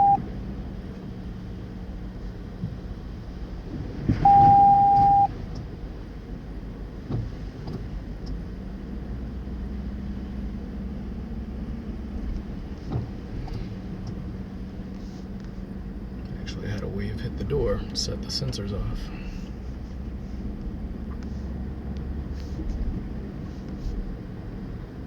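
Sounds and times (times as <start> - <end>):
car electronic beep: 0.0 - 0.2, 4.2 - 5.3
car engine droning: 0.0 - 25.0
water wave slapping car door: 3.7 - 5.8, 7.0 - 8.3, 12.4 - 14.3.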